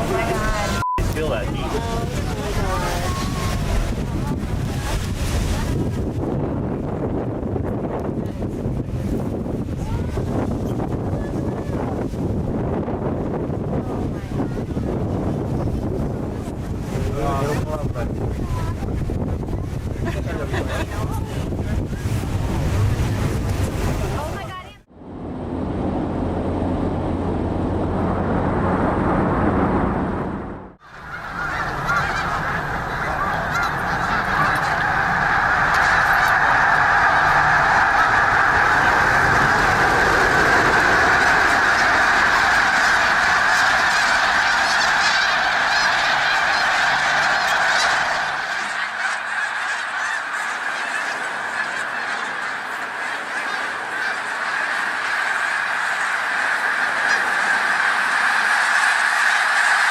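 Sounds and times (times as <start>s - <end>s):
flock of birds calling: 0.0s - 6.2s, 30.8s - 59.9s
low rumbling noise: 0.0s - 59.3s.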